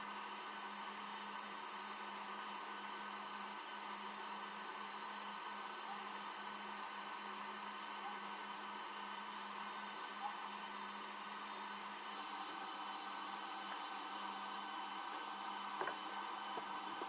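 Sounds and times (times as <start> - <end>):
background hiss: 0.0 - 17.0
steady high-pitched tones: 11.4 - 17.0.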